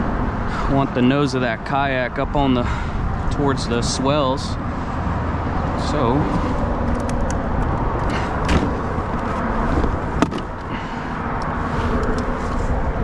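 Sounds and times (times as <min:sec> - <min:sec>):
wind rumble on microphone: 0:00.0 - 0:13.0
handling clicks and knocks: 0:06.8 - 0:10.7.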